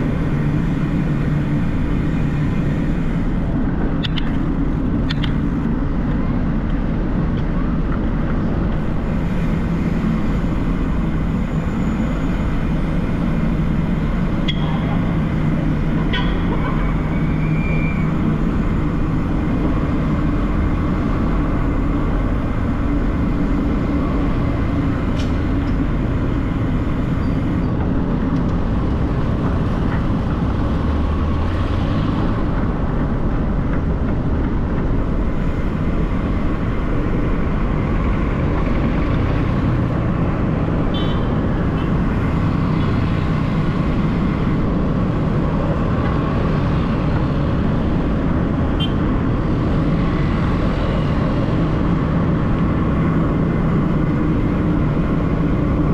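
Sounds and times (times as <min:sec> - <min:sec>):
city street traffic: 0:00.0 - 0:55.9.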